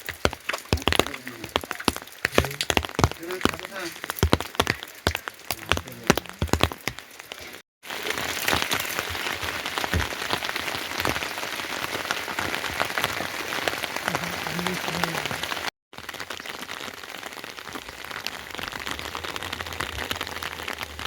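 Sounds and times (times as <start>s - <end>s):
heavy rain pattering: 0.0s - 21.0s.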